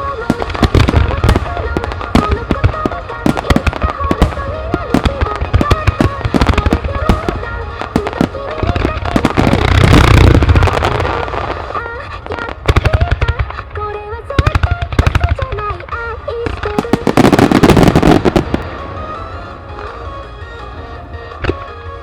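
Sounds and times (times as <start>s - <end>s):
fireworks booming and crackling: 0.0s - 22.0s
fireworks sharp cracks: 0.0s - 22.0s
song over loudspeakers: 0.0s - 22.0s.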